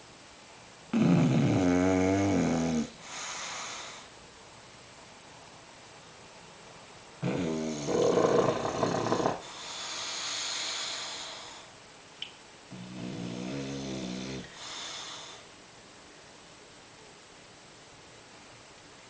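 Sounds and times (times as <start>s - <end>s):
dog snoring: 0.9s - 4.0s, 7.2s - 11.6s, 12.7s - 15.4s.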